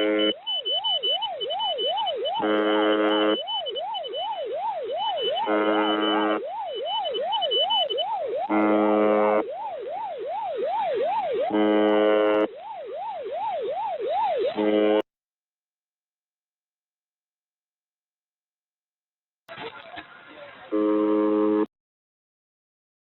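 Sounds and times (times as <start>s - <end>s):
coarse radio buzz: 0.0s - 0.4s, 2.3s - 3.4s, 5.4s - 6.4s, 8.5s - 9.4s, 19.5s - 21.7s
siren-like sweeping tone: 0.0s - 15.0s.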